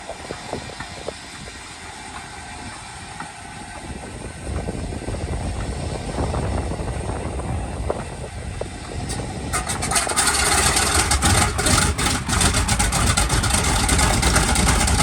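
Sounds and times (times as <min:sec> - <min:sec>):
aircraft engine starter whine: 0:08.6 - 0:15.0.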